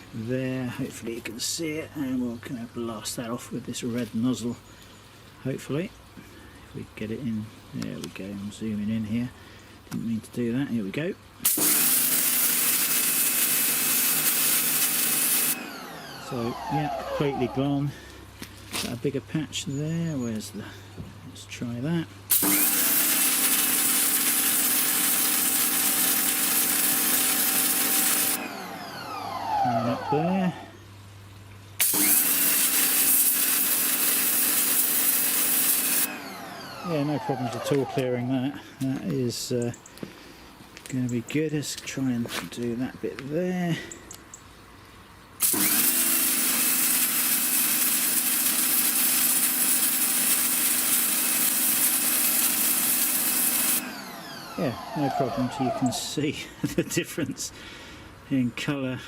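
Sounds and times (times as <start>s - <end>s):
motor and pump hum: 11.2s - 19.0s, 22.0s - 39.1s, 44.8s - 56.8s
pressure washer water jet hissing: 11.4s - 17.9s, 22.3s - 30.4s, 31.8s - 38.4s, 45.4s - 56.2s.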